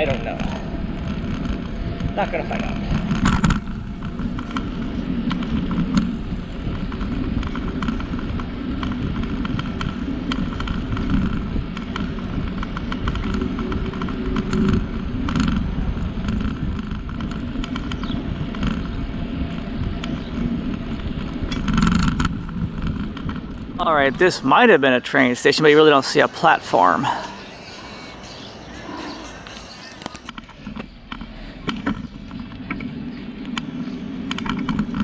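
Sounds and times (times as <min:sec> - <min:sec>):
bicycle rolling rumble: 0:00.0 - 0:24.0, 0:27.4 - 0:35.0
bike clicks and rattles: 0:03.0 - 0:23.8.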